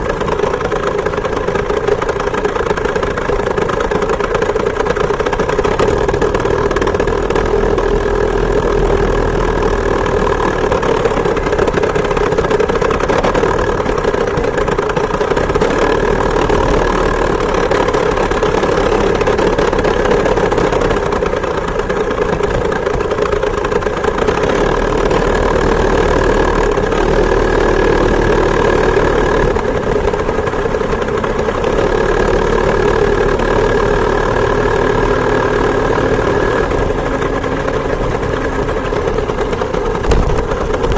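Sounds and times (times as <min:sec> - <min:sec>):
two-stroke moped engine running: 0:00.0 - 0:40.9.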